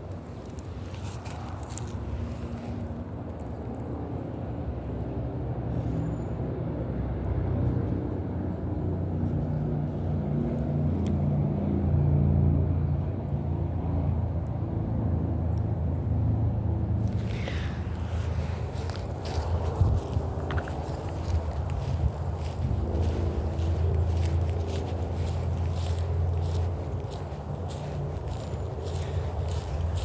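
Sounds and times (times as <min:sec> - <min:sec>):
vehicle engine humming: 0:00.0 - 0:30.0
scratchy rustle: 0:17.0 - 0:30.0.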